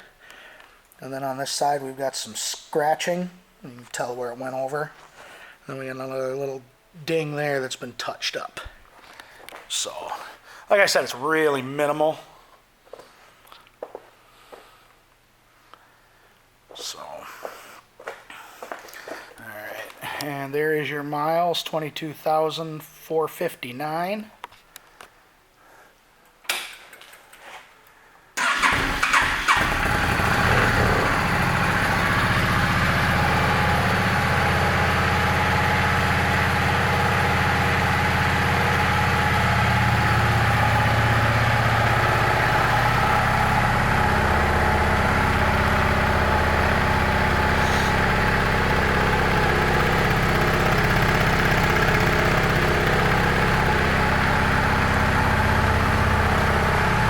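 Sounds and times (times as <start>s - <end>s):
motorcycle engine starting and idling: 28.4s - 57.0s.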